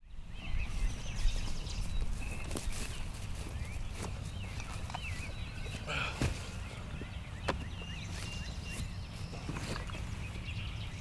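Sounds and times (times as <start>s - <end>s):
wind rumbling on microphone: 0.0s - 5.7s
small birds chirping: 0.0s - 11.0s.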